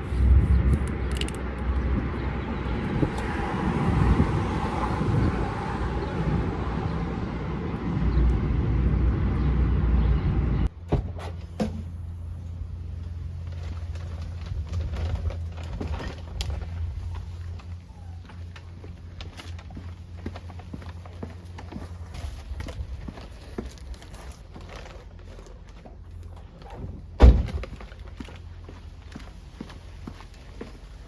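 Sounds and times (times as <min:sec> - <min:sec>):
low hum: 0:00.0 - 0:10.8
car road and engine rumble: 0:00.0 - 0:31.0
sharp clicks: 0:00.8 - 0:01.7.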